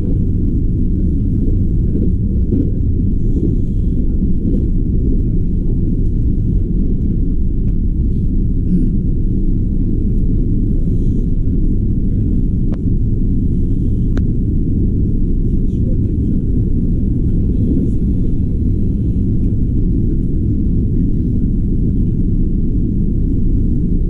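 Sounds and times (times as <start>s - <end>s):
train rumbling on track: 0.0s - 24.0s.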